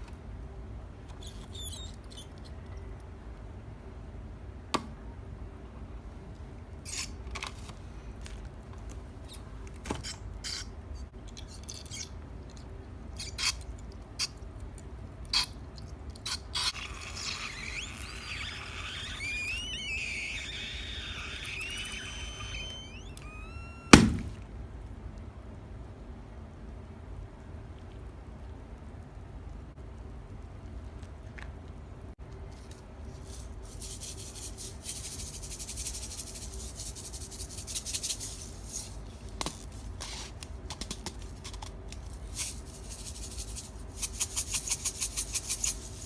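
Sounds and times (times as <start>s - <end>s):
rubbery squeaks of balloon: 1.1s - 2.4s, 16.3s - 24.4s
balloon bursting: 16.7s - 24.4s.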